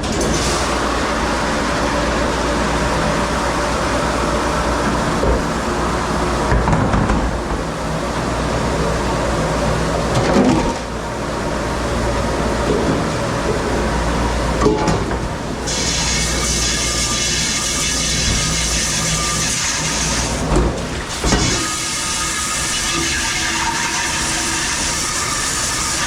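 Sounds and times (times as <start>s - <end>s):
dishwasher spraying: 15.7s - 26.0s.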